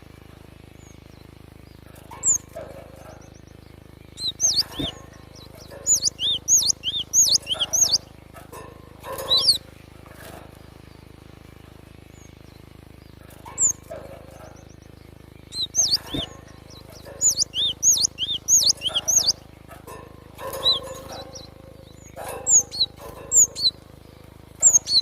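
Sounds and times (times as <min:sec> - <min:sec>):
bird whistled calls: 0:02.2 - 0:02.5, 0:04.1 - 0:08.1, 0:09.2 - 0:09.6, 0:13.5 - 0:13.9, 0:15.4 - 0:19.4, 0:20.4 - 0:23.8, 0:24.6 - 0:25.0.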